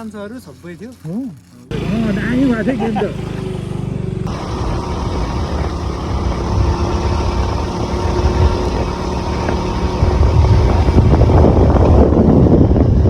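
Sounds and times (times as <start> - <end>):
motorcycle engine running: 1.7 - 13.0.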